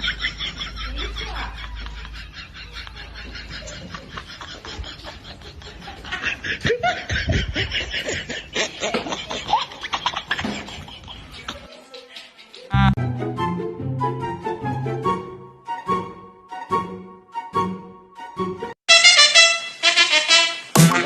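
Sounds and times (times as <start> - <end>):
person laughing and snickering: 0.8 - 12.9.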